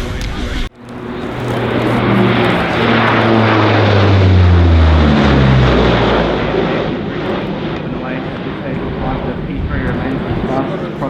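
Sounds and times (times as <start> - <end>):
propeller aircraft flying past: 0.7 - 11.0.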